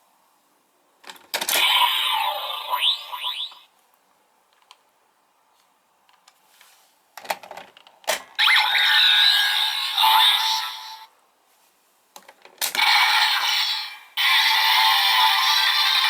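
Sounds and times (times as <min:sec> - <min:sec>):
electronic sound with musical tones: 0:08.4 - 0:11.1.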